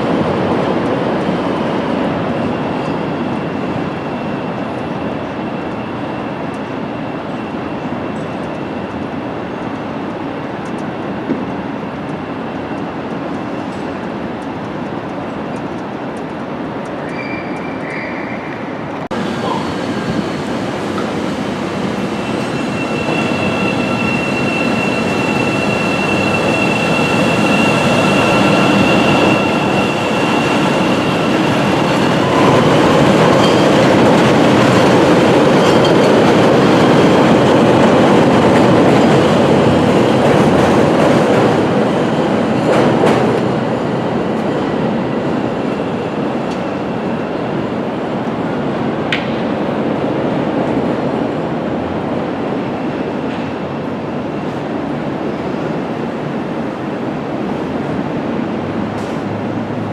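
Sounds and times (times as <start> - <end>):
train running past: 0.0 - 59.9
train wheels squealing: 17.0 - 18.8, 19.4 - 33.9.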